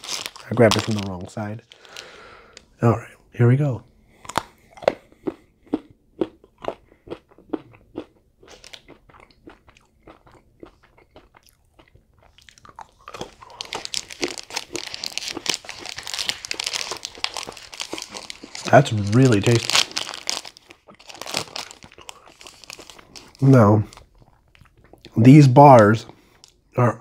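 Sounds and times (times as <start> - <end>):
continuous crackling: 0.0 - 2.7, 12.2 - 25.2
chewing crunchy chocolate bar: 4.2 - 25.2.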